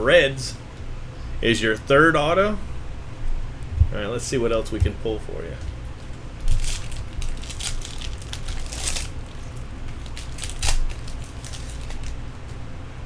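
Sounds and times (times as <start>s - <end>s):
cards being handled: 5.6s - 12.2s
wrapper crinkling and tearing: 6.4s - 12.2s.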